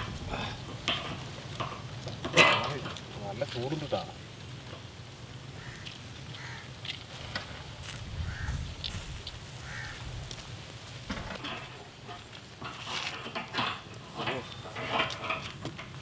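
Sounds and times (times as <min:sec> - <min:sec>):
low outdoor rumble: 0:00.0 - 0:16.0
bird calling: 0:05.6 - 0:06.8, 0:08.2 - 0:10.1.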